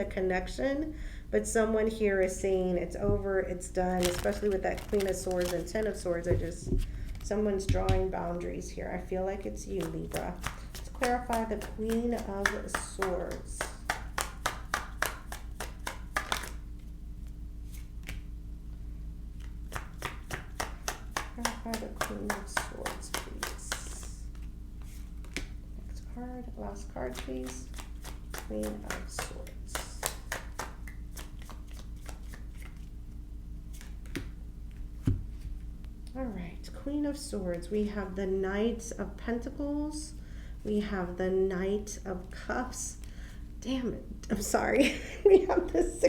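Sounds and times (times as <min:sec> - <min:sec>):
steady low hum: 0:00.0 - 0:46.0
cards being shuffled by hand: 0:03.9 - 0:07.7, 0:09.6 - 0:18.3, 0:19.4 - 0:25.6, 0:27.0 - 0:32.9, 0:33.6 - 0:35.6.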